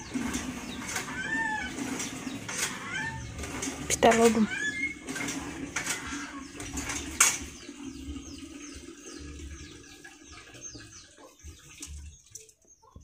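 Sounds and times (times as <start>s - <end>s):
bird chirping: 6.0s - 13.0s.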